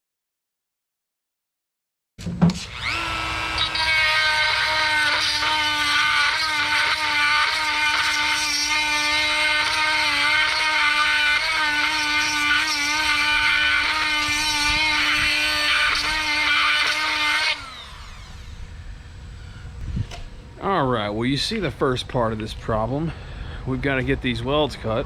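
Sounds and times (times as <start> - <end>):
rotary tool grinding metal: 2.5 - 18.6
rotary tool winding down: 2.6 - 19.0.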